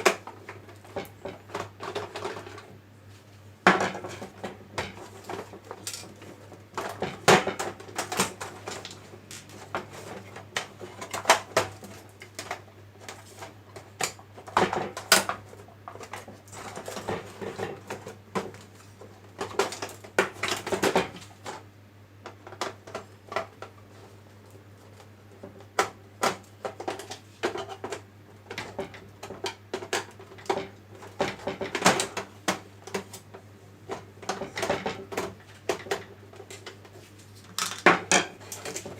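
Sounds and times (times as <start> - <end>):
metal and plastic parts clattering: 0.9 - 2.7, 3.7 - 21.6, 33.9 - 36.8, 37.4 - 38.9.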